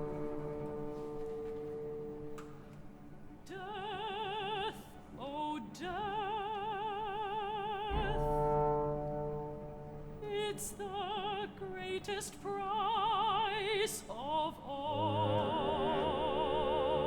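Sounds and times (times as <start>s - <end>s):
chamber ensemble playing: 0.0s - 2.8s, 7.9s - 10.9s
operatic soprano singing: 3.4s - 17.0s.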